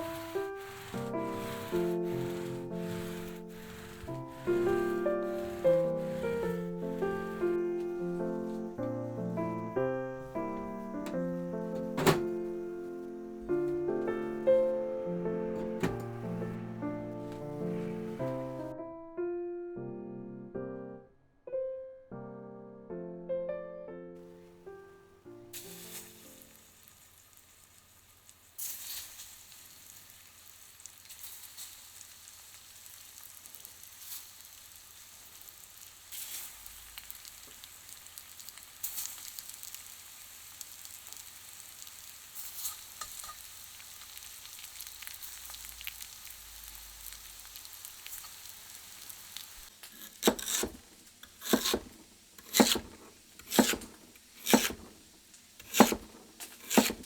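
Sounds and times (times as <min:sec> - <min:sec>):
food sizzling in a pan: 0:00.0 - 0:15.4, 0:25.5 - 0:57.0.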